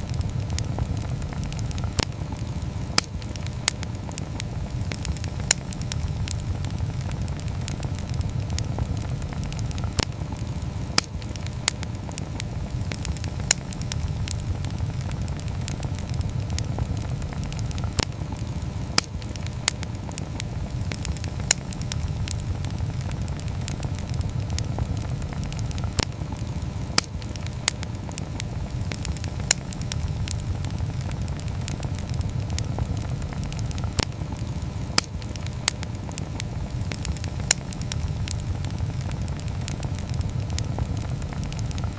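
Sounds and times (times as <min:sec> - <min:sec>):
wood fire crackling and popping: 0:00.0 - 0:41.9.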